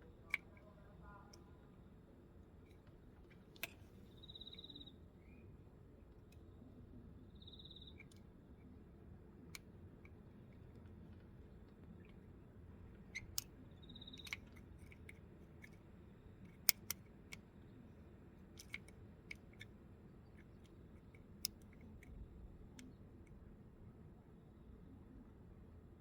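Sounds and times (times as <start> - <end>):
light scattered clicks and taps: 0.0 - 1.5, 9.5 - 17.6, 18.4 - 23.4
faint low hum: 0.0 - 26.0.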